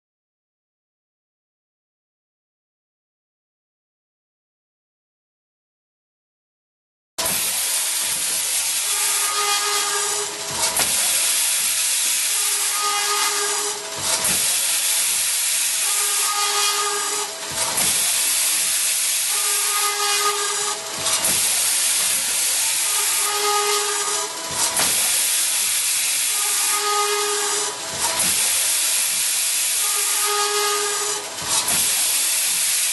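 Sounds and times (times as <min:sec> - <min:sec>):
circular saw cutting metal tube: 0:07.2 - 0:32.9.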